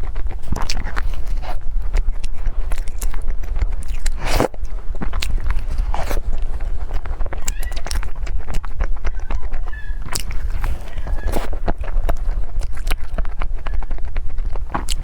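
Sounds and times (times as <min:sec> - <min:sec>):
chewing with crunchy clicks: 0:00.0 - 0:15.0
loud crunch: 0:00.0 - 0:15.0.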